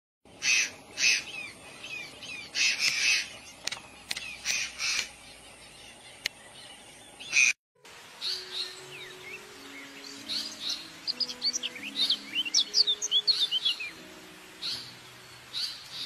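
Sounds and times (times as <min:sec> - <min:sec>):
harsh bird calls: 0:00.3 - 0:07.6.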